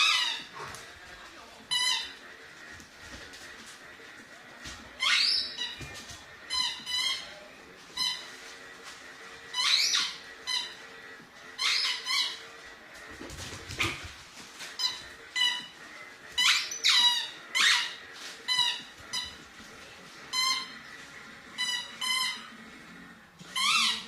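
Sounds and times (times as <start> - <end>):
squeaky dog toy squeaking: 0.0 - 0.5, 1.7 - 2.2, 5.0 - 5.9, 6.5 - 7.4, 8.0 - 8.3, 9.5 - 10.9, 11.6 - 12.4, 14.8 - 15.8, 16.4 - 19.4, 20.3 - 20.8, 21.6 - 22.5, 23.5 - 24.0.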